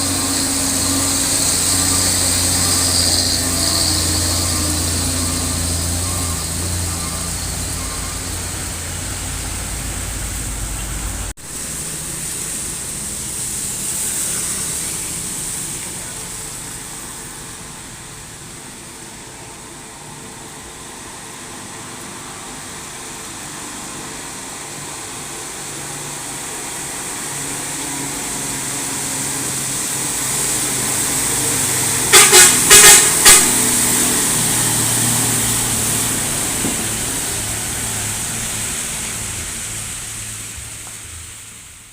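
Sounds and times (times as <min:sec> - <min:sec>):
truck engines on road: 0:00.0 - 0:41.9
vehicle horn toots: 0:31.9 - 0:34.2.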